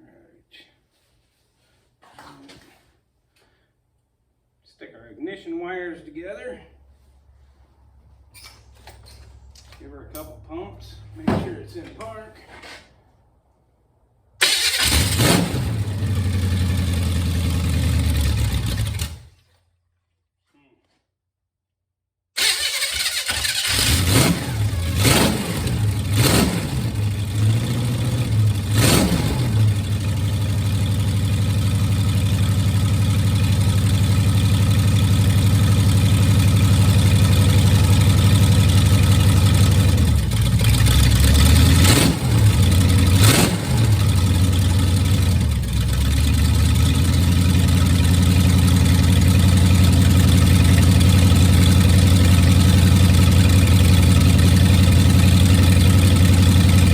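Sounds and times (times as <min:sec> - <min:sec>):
engine revving: 0:14.4 - 0:19.3, 0:22.4 - 0:56.9.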